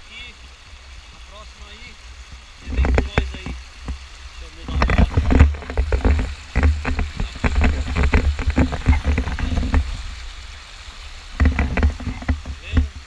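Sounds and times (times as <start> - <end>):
low rumble on microphone: 0.0 - 13.0
river water splashing: 0.0 - 13.0.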